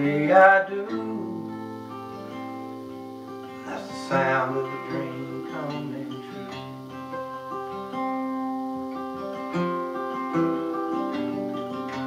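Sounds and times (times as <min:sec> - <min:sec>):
person singing country song: 0:00.0 - 0:08.4
acoustic guitar playing: 0:00.0 - 0:12.0.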